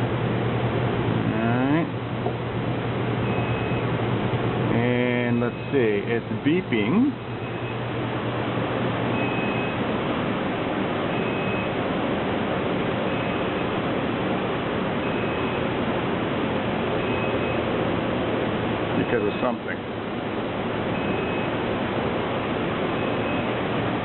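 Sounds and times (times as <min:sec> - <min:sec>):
short high alarm beeps: 0:03.2 - 0:03.8, 0:05.5 - 0:05.8, 0:07.4 - 0:07.8, 0:09.1 - 0:09.8, 0:11.1 - 0:11.7, 0:13.1 - 0:13.7, 0:15.0 - 0:15.6, 0:17.0 - 0:17.6, 0:21.0 - 0:21.6, 0:22.9 - 0:23.6.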